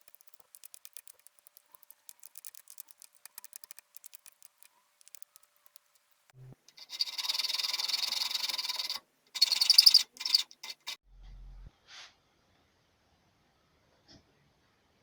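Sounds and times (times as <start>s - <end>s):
hand tool rasping wood: 6.8s - 11.0s.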